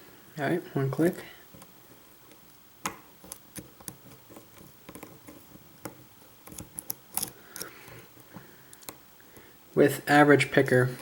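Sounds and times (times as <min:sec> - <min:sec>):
lock pick clicking in lock: 0:06.5 - 0:07.7.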